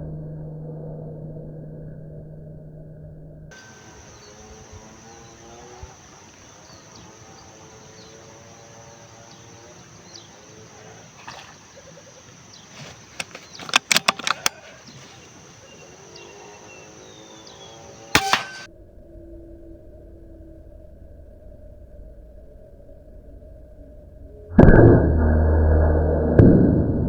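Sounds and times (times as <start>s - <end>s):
faint bird calls: 3.5s - 18.7s
rapid sharp clicks: 12.6s - 15.6s, 18.1s - 18.7s.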